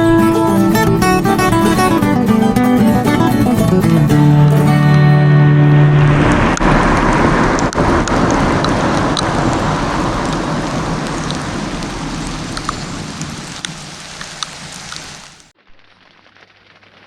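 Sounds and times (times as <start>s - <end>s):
heavy rain hissing: 0.0s - 17.0s
raindrop ticks: 6.2s - 17.0s.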